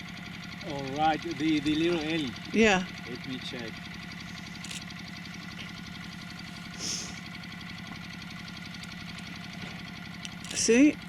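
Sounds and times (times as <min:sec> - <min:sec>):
vehicle engine idling: 0:00.0 - 0:11.0
brief hiss: 0:06.8 - 0:07.2.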